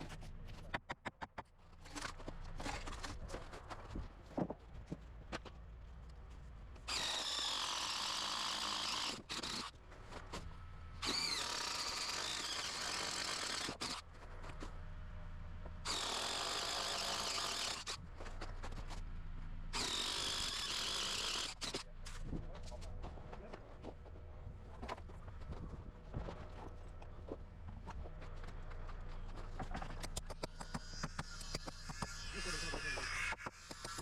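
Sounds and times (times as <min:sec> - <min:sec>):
power drill boring into concrete: 0:06.9 - 0:09.7, 0:11.0 - 0:14.0, 0:15.9 - 0:18.0, 0:19.7 - 0:21.9, 0:30.4 - 0:34.0.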